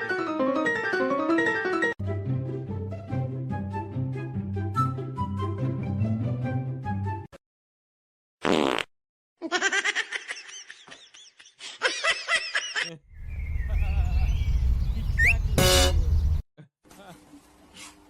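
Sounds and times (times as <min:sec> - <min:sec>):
buzzing fart sound: 0:08.4 - 0:08.9.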